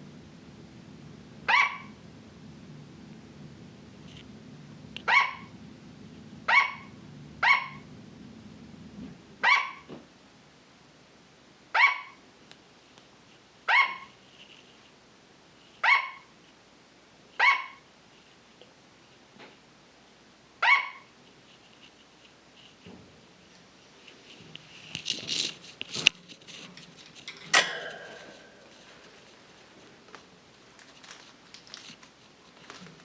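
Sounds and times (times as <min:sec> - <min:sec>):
sugar glider barking: 0:01.4 - 0:02.2, 0:05.0 - 0:08.0, 0:09.4 - 0:09.9, 0:11.7 - 0:12.2, 0:13.7 - 0:14.1, 0:15.8 - 0:16.3, 0:17.4 - 0:17.8, 0:20.6 - 0:21.1.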